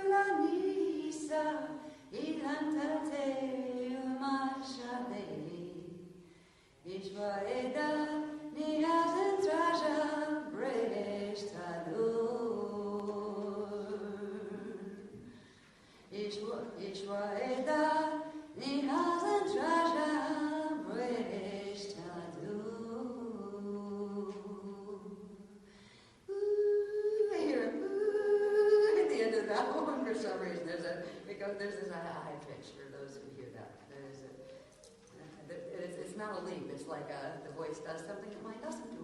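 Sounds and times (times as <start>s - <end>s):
person singing unaccompanied: 26.3s - 29.7s.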